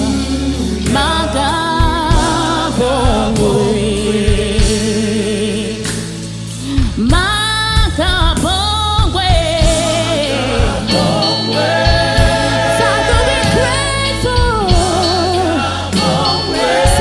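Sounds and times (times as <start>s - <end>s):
church choir singing: 0.0s - 5.9s, 9.7s - 17.0s
steady bass: 0.0s - 17.0s.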